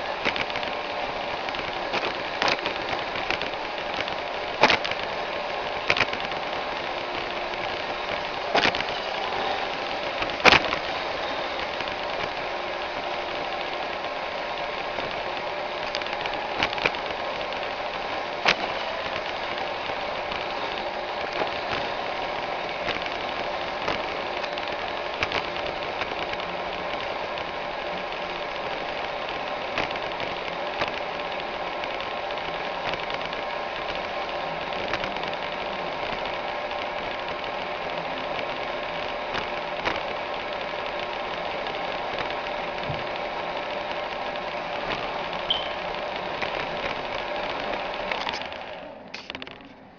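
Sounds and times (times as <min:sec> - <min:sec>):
robot vacuum whirring: 0:00.0 - 0:49.8.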